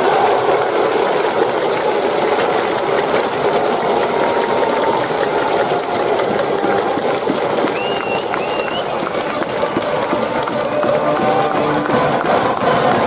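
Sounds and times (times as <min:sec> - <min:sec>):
crowd clapping rapidly: 0:00.0 - 0:13.0.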